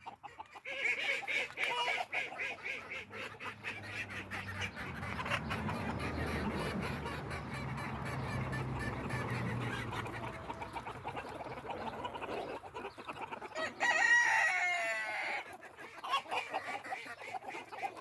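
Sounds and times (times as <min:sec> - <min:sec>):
chickens clucking: 0:00.0 - 0:18.0
rooster crowing: 0:13.6 - 0:15.4.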